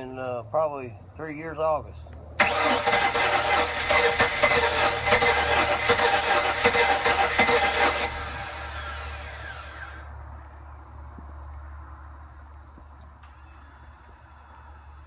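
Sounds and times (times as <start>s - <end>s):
boat engine starter rattling: 2.4s - 9.2s.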